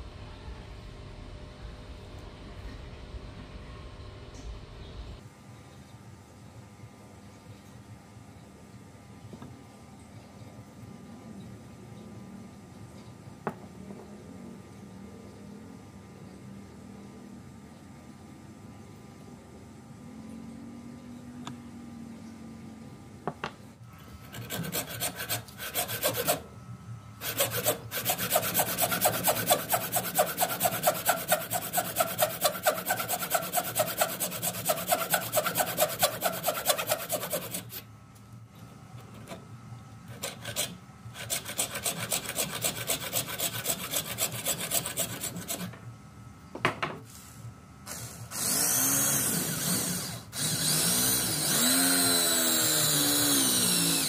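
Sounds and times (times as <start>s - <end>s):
hand tool scraping wood: 24.3s - 26.4s, 27.2s - 37.8s, 40.1s - 45.7s
power tool whine: 47.9s - 54.0s.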